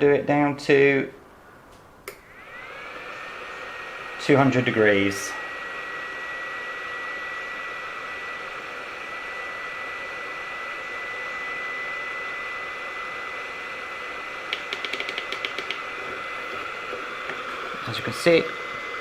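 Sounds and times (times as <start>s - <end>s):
hot air gun blowing: 11.6s - 19.0s
sharp clicks: 14.5s - 15.8s.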